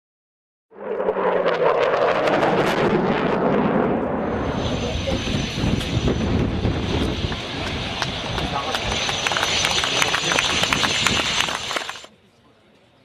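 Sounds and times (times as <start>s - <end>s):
high turbine whine: 0.8s - 12.1s
loud rushing jet noise: 0.8s - 12.1s.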